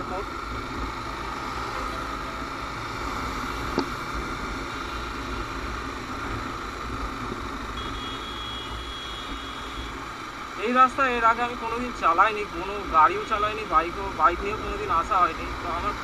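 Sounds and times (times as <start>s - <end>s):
motorcycle engine running: 0.0s - 11.9s
road and wind noise: 0.0s - 16.0s.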